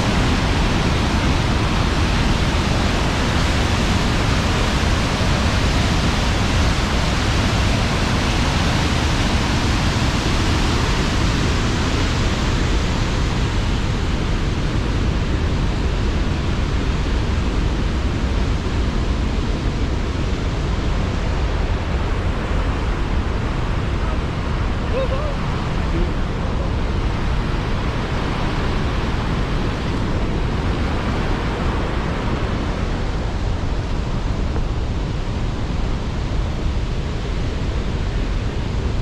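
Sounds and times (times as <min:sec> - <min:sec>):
waterfall rushing: 0:00.0 - 0:14.8, 0:20.7 - 0:36.9.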